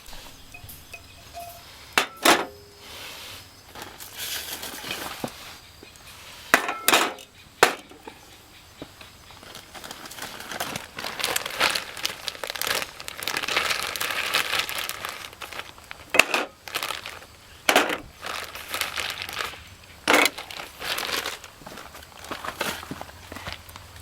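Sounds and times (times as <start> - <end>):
wrapping crinkling: 9.4 - 24.0.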